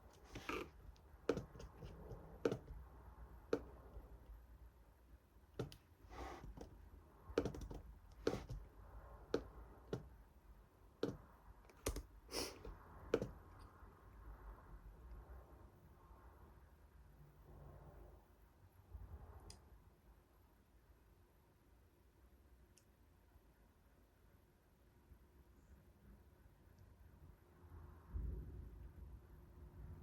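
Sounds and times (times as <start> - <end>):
sharp clicks and taps: 11.0 - 12.1.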